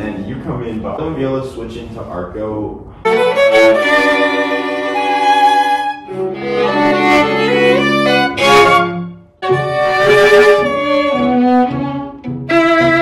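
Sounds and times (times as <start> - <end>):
string quartet playing bowed chords: 3.0 - 13.0.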